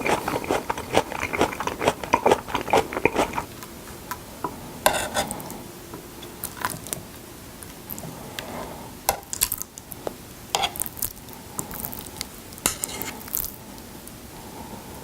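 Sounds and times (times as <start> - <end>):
utensils scraping a dish: 0.0 - 3.5, 4.8 - 5.5, 12.7 - 13.2
wet squishing of raw fish: 0.0 - 3.5.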